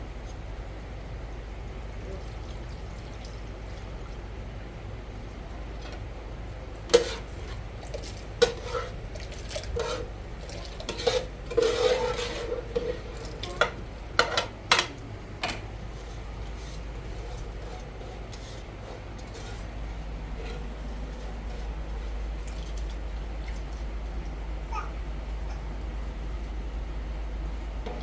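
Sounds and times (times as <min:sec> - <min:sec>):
metal pots clanking together: 0:06.9 - 0:15.6.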